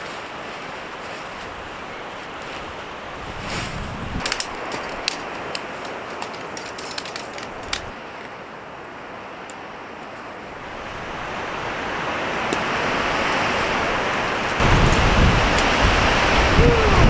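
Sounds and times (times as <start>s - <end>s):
strong wind blowing: 2.7s - 4.3s, 10.6s - 17.0s.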